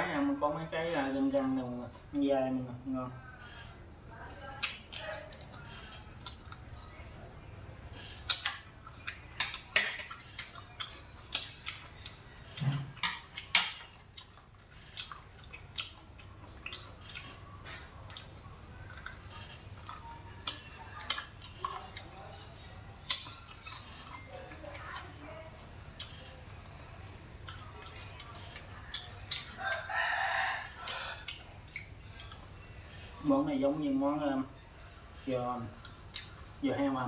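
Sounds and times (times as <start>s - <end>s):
wet chewing smacks: 7.9s - 25.2s, 25.9s - 30.0s, 30.6s - 33.2s.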